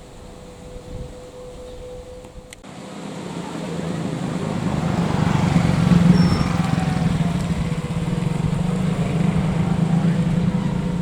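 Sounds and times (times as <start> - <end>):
diesel train engine hum: 0.0 - 11.0.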